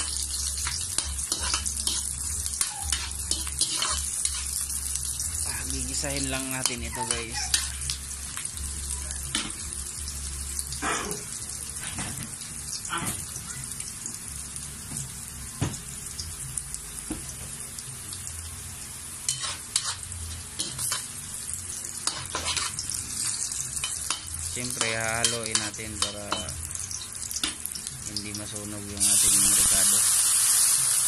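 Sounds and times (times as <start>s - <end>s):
food sizzling in hot oil: 0.0s - 31.0s
metal spatula scraping pan: 1.0s - 4.5s, 19.3s - 20.0s, 22.0s - 22.8s.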